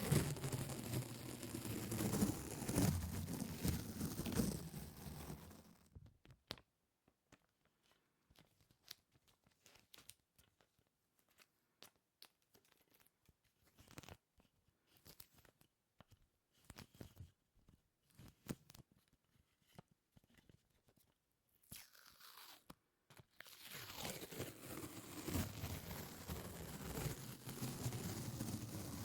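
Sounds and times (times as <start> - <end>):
sticky peeling and tearing: 21.7 - 22.8.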